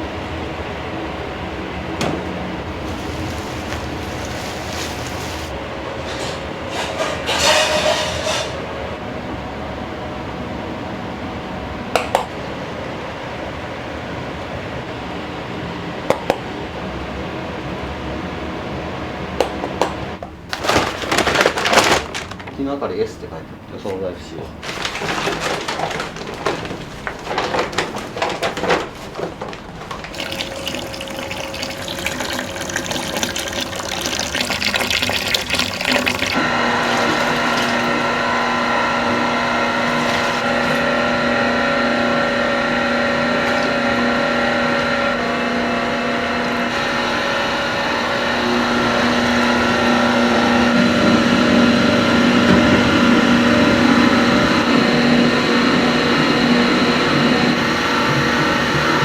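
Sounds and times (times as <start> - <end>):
kitchen clatter of knocks and clicks: 2.0 - 2.4, 6.0 - 8.6, 24.6 - 30.2
machine humming: 24.4 - 59.0.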